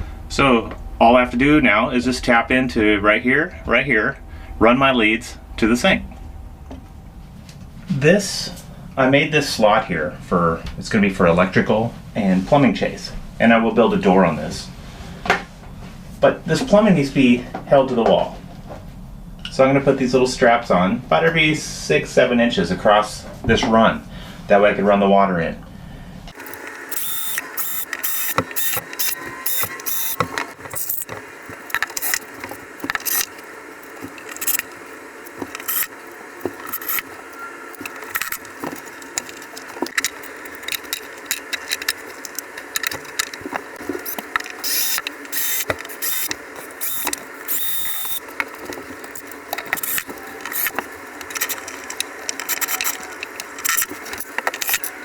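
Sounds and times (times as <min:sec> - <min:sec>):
clicks and knocks of hand work: 0:26.3 - 0:55.0.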